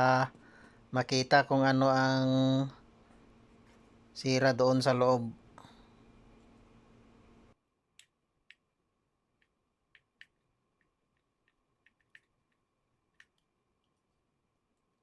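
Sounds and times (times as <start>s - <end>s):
faint small clicks and ticks: 9.4s - 14.1s.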